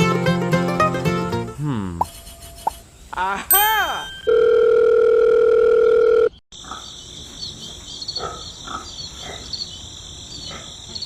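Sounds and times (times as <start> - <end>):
crickets chirring: 6.6 - 11.0.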